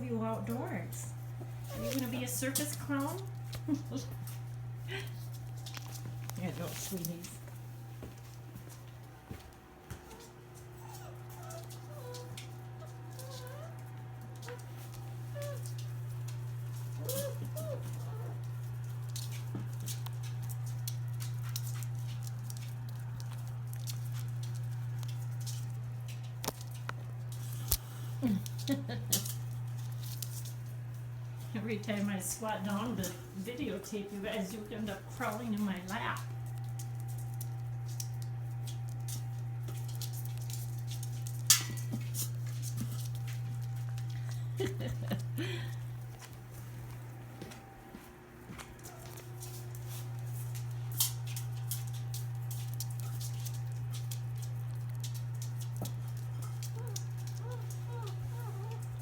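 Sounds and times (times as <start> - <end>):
steady low hum: 0.0 - 59.0
puppy claws clicking and pattering: 0.5 - 47.6, 48.4 - 59.0
puppy whimpering: 1.6 - 2.4, 10.1 - 14.6, 15.3 - 15.8, 16.9 - 18.5, 56.6 - 59.0
puppy squeaks: 1.7 - 2.2.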